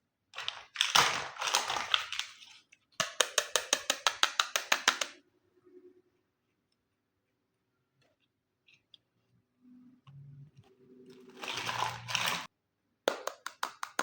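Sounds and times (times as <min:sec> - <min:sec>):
plastic packaging crinkling: 0:00.4 - 0:02.8, 0:11.1 - 0:12.5
toy pieces clicking: 0:03.0 - 0:05.2.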